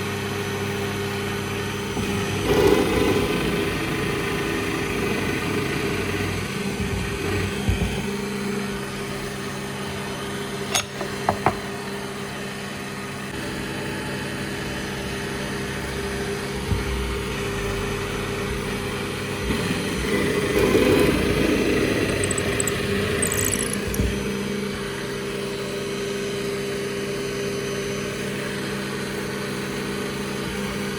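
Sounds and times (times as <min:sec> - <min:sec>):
power tool motor running: 0:02.0 - 0:08.2, 0:19.5 - 0:24.6
sharp clicks: 0:22.1 - 0:24.1.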